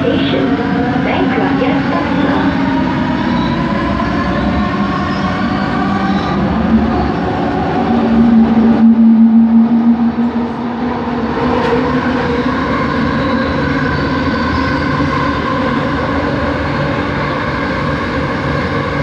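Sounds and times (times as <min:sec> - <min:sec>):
train running noise: 0:00.0 - 0:19.0.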